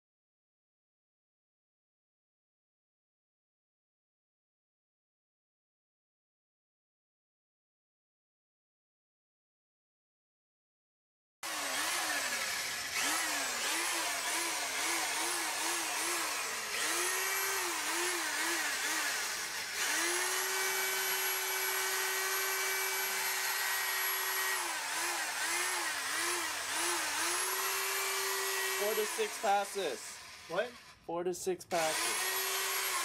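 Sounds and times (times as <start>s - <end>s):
power drill sanding plastic: 11.4s - 33.0s.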